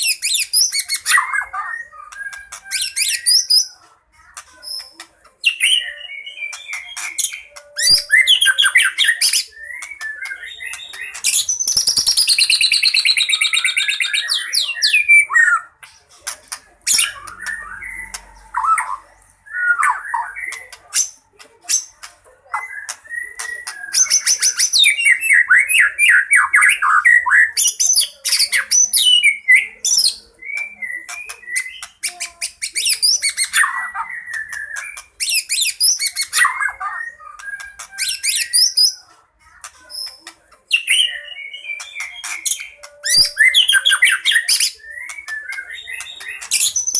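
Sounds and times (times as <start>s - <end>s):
songbird whistling and trilling: 0.0s - 3.8s, 5.4s - 15.7s, 22.5s - 39.1s, 40.0s - 46.9s.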